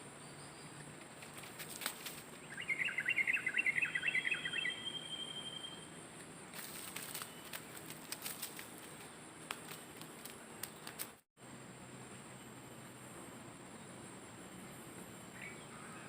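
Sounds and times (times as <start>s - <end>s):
bird chirping: 0.0s - 6.0s, 6.9s - 9.6s, 13.7s - 16.0s
faint clicks and rustles: 0.8s - 2.5s, 6.2s - 11.2s.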